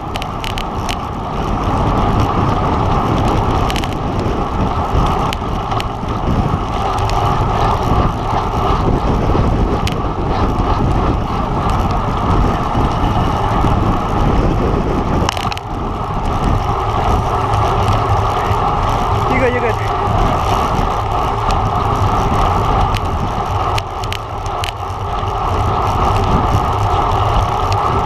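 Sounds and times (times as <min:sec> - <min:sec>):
bicycle road noise: 0:00.0 - 0:28.0
wind rush: 0:00.0 - 0:28.0
sharp clicks: 0:03.6 - 0:04.0.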